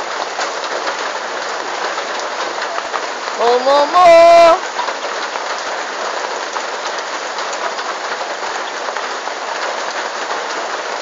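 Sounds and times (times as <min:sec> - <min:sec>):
rain on wet ground: 0:00.0 - 0:11.0.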